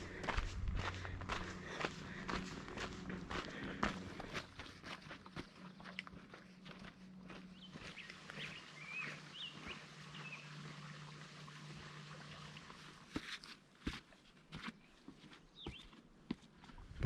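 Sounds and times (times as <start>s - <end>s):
footsteps: 0.0s - 9.8s
steady low hum: 0.0s - 13.0s.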